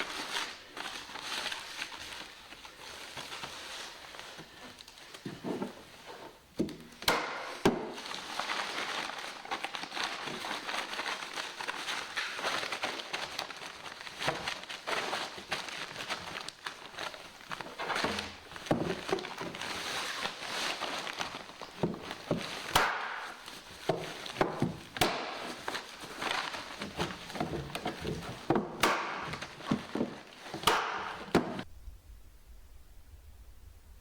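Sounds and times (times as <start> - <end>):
rustling: 0.0 - 34.0.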